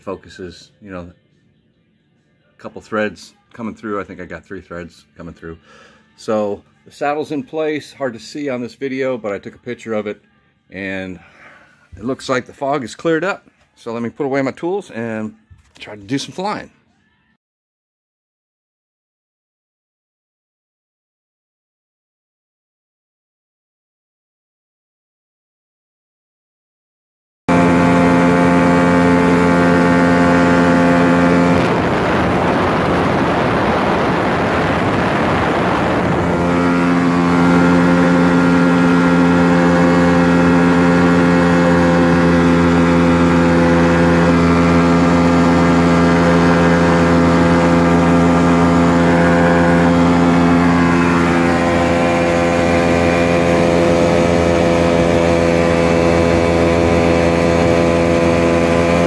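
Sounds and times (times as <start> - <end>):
light aircraft engine droning: 27.5 - 59.0
rushing noise: 31.4 - 38.3.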